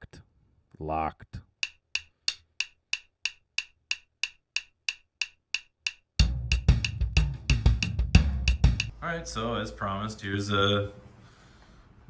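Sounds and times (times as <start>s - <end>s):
snare drum hits: 6.2s - 8.9s
bass drum hits: 6.2s - 9.0s.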